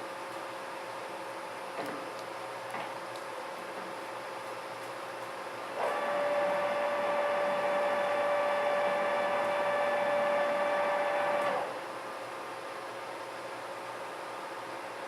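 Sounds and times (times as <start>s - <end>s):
lathe mechanical whine: 5.8s - 11.9s.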